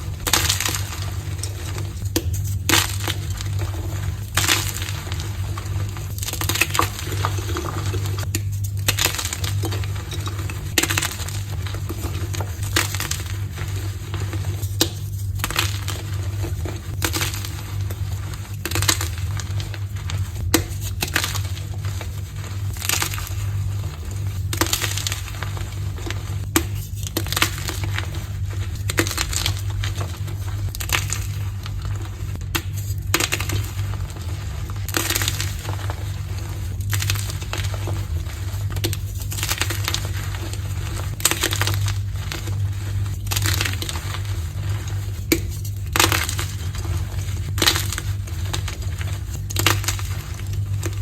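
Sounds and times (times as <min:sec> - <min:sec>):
chalk crunching and crackling: 0:00.0 - 0:51.0
steady low hum: 0:00.0 - 0:51.0.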